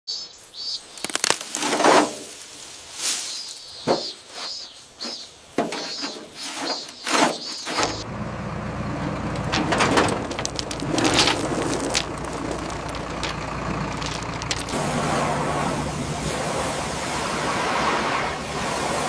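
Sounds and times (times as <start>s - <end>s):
metallic clanks and scrapes: 3.9s - 8.0s, 9.0s - 14.8s
vehicle engine running: 7.8s - 19.0s.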